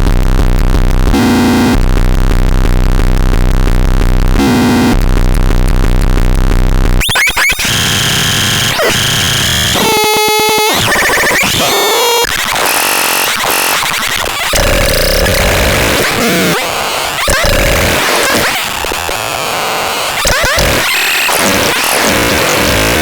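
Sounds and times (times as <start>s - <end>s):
rapid buzzing pulse: 0.0s - 23.0s
hissy electronic noise: 7.0s - 23.0s.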